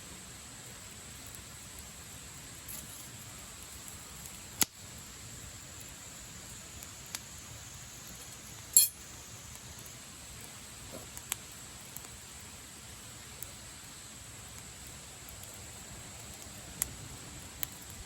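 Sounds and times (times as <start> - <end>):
campfire crackling: 0.0 - 18.0
fire popping: 0.5 - 18.0.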